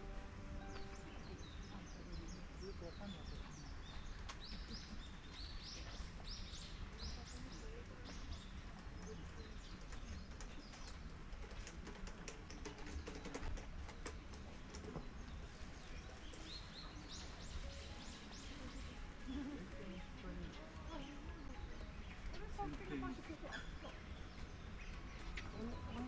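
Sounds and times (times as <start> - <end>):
outdoor background noise: 0.0 - 26.0
small bird chirping: 13.0 - 26.0.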